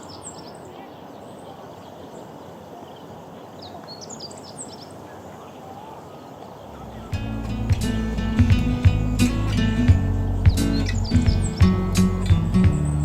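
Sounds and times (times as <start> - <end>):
bird singing high chirps: 0.0 - 5.0, 6.0 - 13.0
outdoor background hiss: 0.0 - 13.0
background music: 7.1 - 13.0.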